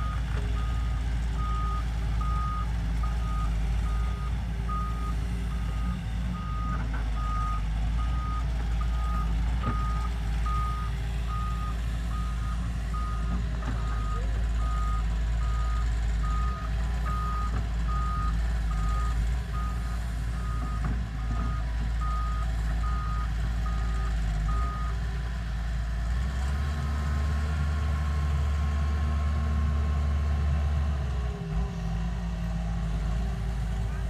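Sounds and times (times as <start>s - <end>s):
reversing alarm beeping: 0.0s - 19.8s
diesel engine running: 0.0s - 34.0s.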